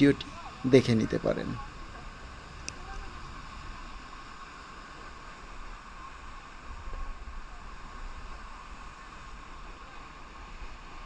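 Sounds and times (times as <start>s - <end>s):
waterfall rushing into pool: 0.0s - 11.0s.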